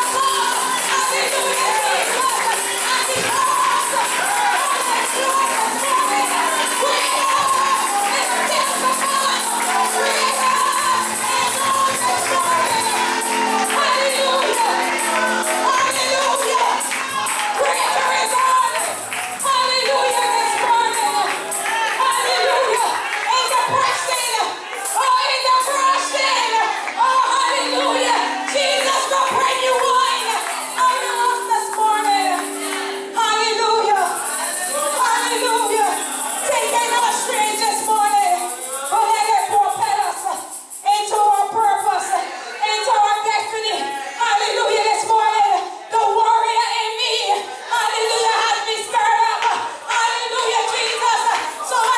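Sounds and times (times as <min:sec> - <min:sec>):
tambourine shaking: 0:00.0 - 0:25.7, 0:28.6 - 0:42.2, 0:50.9 - 0:51.9
voices singing gospel: 0:00.0 - 0:51.9.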